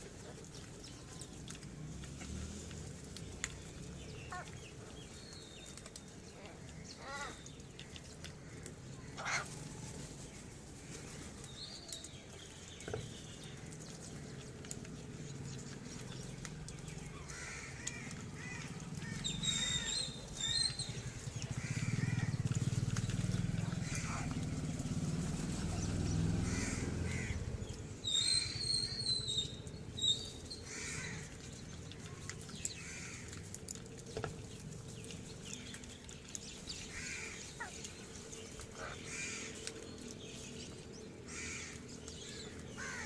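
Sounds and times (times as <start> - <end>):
birds calling: 0.0 - 43.0
high chirping calls: 27.7 - 30.7.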